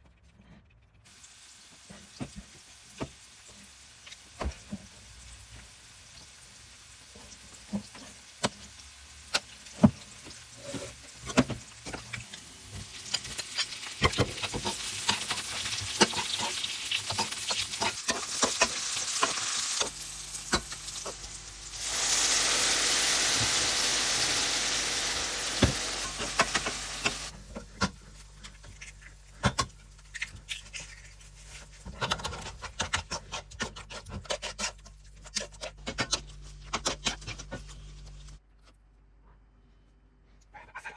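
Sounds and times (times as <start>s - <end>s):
food sizzling in a pan: 1.1s - 27.4s.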